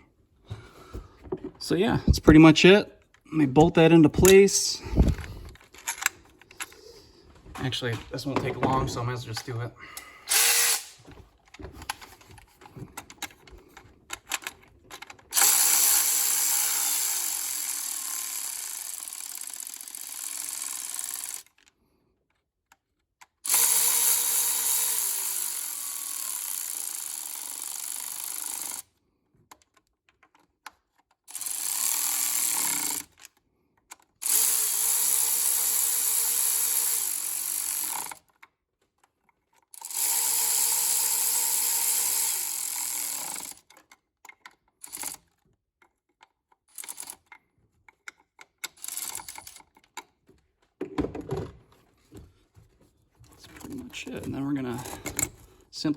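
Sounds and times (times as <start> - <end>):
clicking of parts and tools: 4.1 - 8.6, 9.3 - 51.5, 53.2 - 55.6
power driver whirring: 7.8 - 14.6, 15.3 - 21.5, 23.5 - 28.8, 31.3 - 33.1, 34.2 - 38.2, 39.8 - 43.6.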